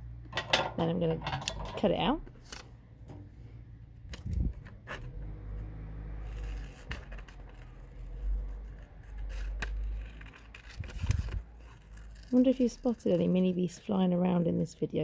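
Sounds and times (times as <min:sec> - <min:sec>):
scissors snipping paper: 0:06.2 - 0:13.6.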